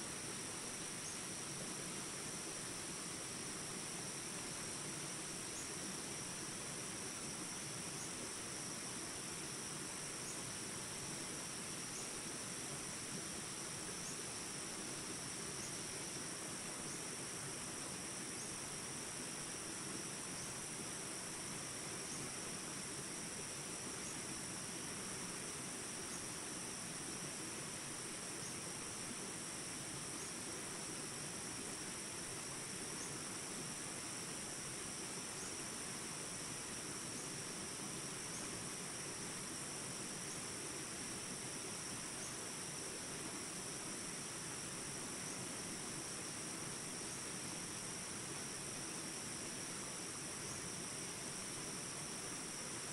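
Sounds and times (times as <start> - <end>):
insect chorus trilling: 0.0 - 52.9.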